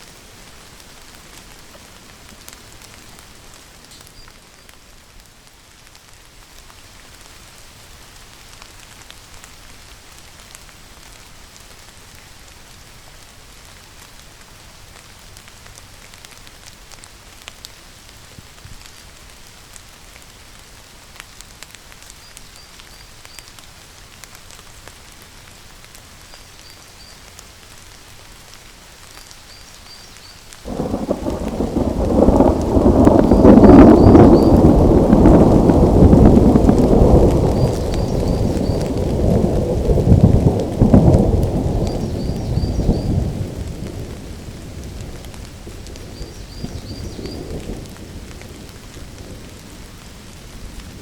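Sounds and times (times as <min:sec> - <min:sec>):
steady rainfall: 0:00.0 - 0:51.0
thunderclap rumbling: 0:30.7 - 0:51.0.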